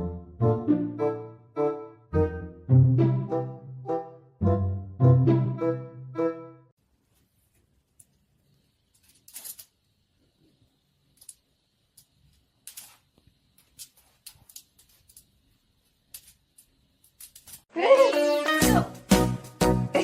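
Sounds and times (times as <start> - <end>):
faint clicks and rustles: 7.0 - 17.7.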